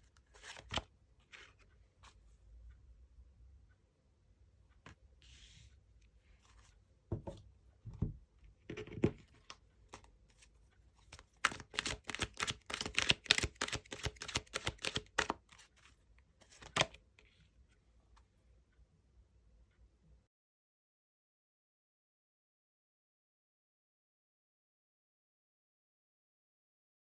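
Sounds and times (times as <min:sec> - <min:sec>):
cards shuffling: 0:00.3 - 0:00.8, 0:11.1 - 0:15.7, 0:16.4 - 0:17.0
soft knocks: 0:07.1 - 0:08.2.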